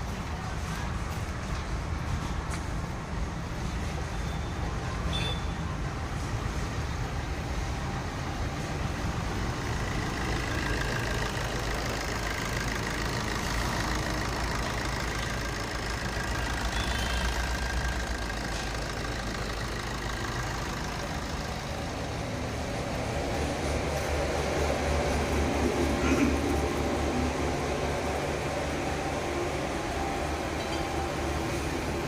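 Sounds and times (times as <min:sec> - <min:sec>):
car engine idling: 0:06.9 - 0:32.0.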